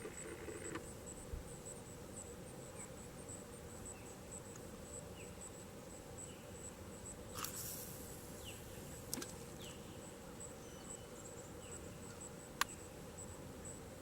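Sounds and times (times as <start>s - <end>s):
insect chirping: 0.0s - 14.0s
low background hiss: 0.0s - 14.0s.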